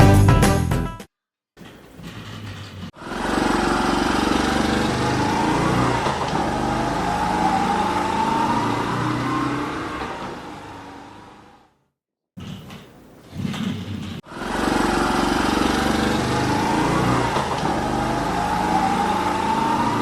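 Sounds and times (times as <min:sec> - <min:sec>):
engine revving: 0:03.0 - 0:11.8, 0:14.2 - 0:20.0.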